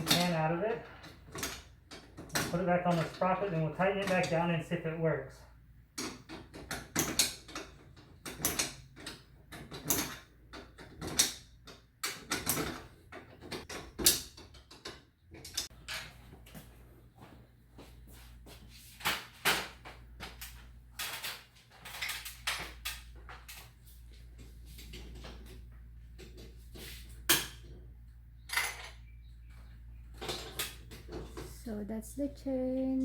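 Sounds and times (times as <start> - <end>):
low steady hum: 20.2 - 33.0.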